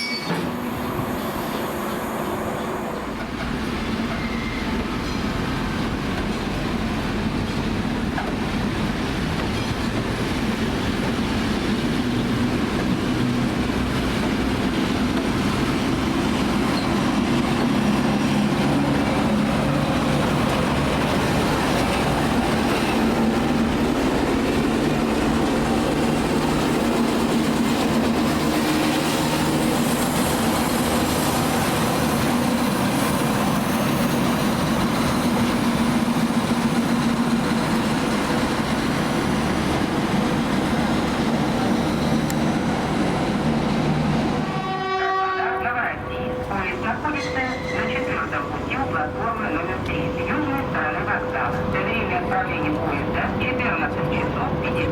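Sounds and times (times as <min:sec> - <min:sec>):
train wheels rumbling: 0:00.0 - 0:54.9.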